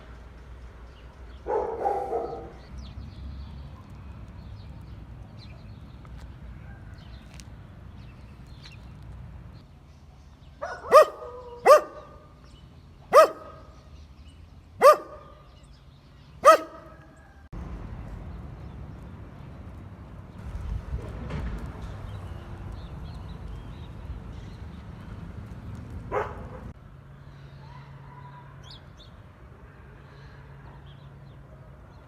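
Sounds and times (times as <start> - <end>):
dog barking: 1.4 - 2.6, 10.6 - 12.2, 13.1 - 13.7, 14.8 - 15.4, 16.4 - 17.2, 26.1 - 26.7.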